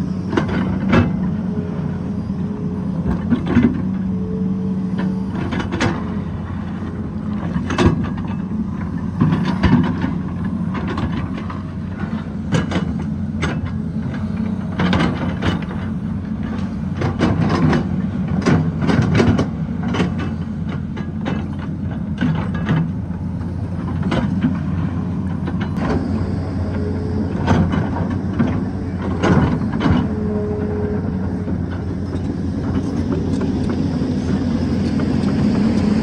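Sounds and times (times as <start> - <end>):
excavator diesel engine: 0.0 - 36.0.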